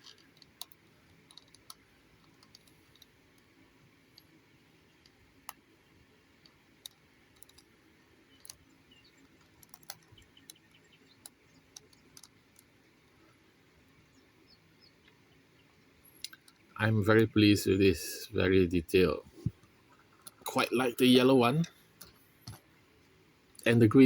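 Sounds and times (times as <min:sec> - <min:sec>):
faint clicks and taps: 0:00.0 - 0:05.7, 0:06.3 - 0:13.4, 0:16.1 - 0:16.8, 0:21.6 - 0:23.7.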